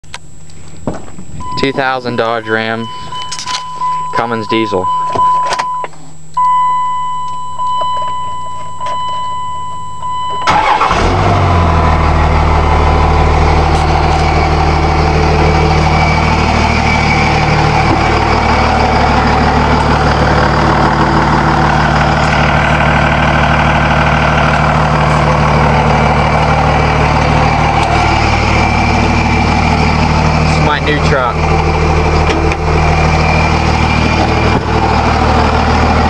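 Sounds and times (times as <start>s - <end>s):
diesel engine starting and idling: 1.3s - 5.8s, 6.4s - 36.0s
steady high tone: 1.4s - 5.6s, 12.0s - 36.0s.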